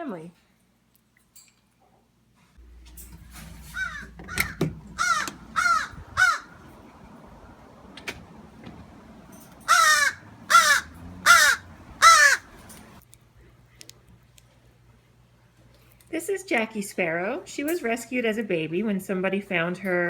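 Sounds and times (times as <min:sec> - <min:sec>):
crow cawing: 0:03.6 - 0:07.0, 0:09.4 - 0:13.0.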